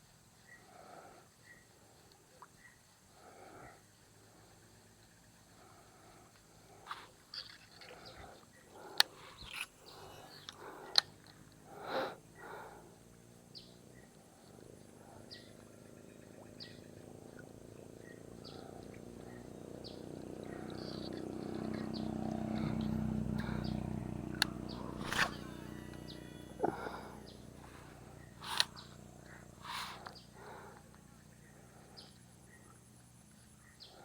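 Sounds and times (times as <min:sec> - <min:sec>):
small birds chirping: 0:00.0 - 0:34.0
low droning hum: 0:15.6 - 0:33.7.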